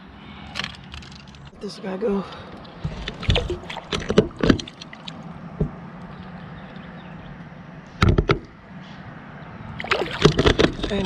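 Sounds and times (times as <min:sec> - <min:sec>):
knocks and bumps in a boat: 0:02.4 - 0:07.4, 0:08.0 - 0:08.6, 0:09.8 - 0:11.0.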